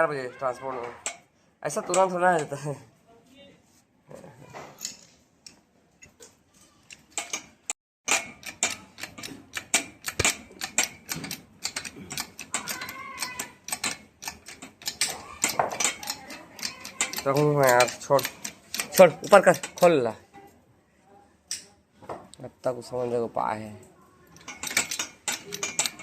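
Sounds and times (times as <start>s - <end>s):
metal hand tools tapping: 0.7s - 2.6s, 6.9s - 20.1s, 24.3s - 26.0s.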